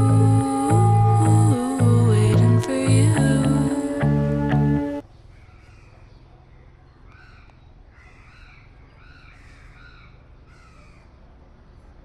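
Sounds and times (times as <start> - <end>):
birds calling: 4.9 - 11.9.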